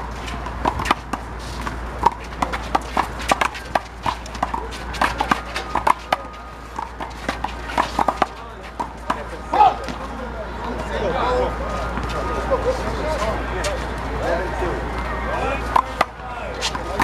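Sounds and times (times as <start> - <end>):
handball smacks and bounces: 0.3 - 10.1.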